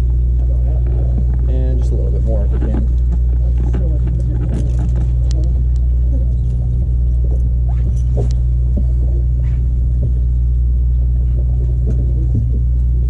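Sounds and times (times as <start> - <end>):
boat engine rumbling: 0.0 - 13.0
faint clicks and knocks: 0.0 - 13.0.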